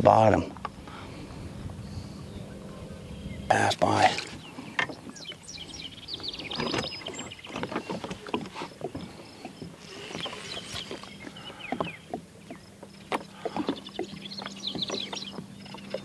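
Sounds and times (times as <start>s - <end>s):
plant stems scraping kayak hull: 3.6s - 12.3s.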